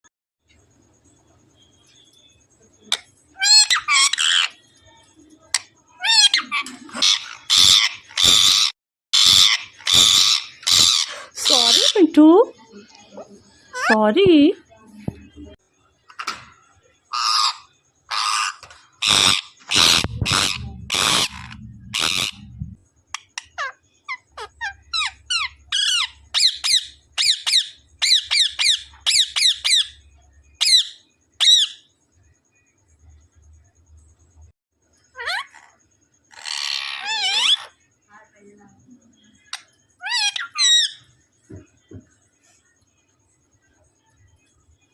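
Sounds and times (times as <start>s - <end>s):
parrot harsh squawks: 3.4s - 4.6s, 6.0s - 12.0s, 17.1s - 22.5s, 23.6s - 30.0s, 30.6s - 31.8s, 35.2s - 37.8s, 40.0s - 41.0s
parrot warbling calls: 6.0s - 12.0s, 17.1s - 22.6s, 23.6s - 30.0s, 35.2s - 35.7s, 36.3s - 37.7s, 40.0s - 41.0s.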